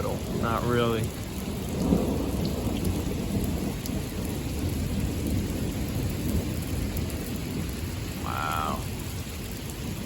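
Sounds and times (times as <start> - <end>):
low thunder rumble: 0.0 - 10.0
steady rain: 0.0 - 10.0.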